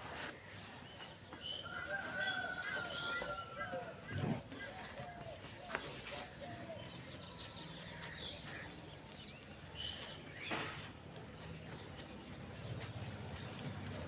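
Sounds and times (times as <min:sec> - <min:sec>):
birds chirping: 0:04.0 - 0:14.0.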